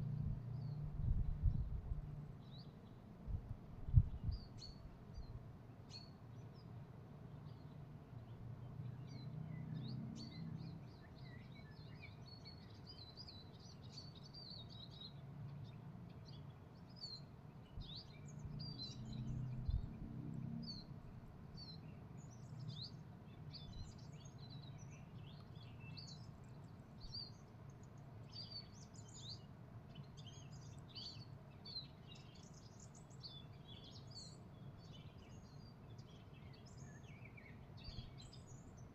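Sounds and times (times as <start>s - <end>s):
low background rumble: 0.0s - 2.6s
small birds chirping: 0.0s - 38.9s.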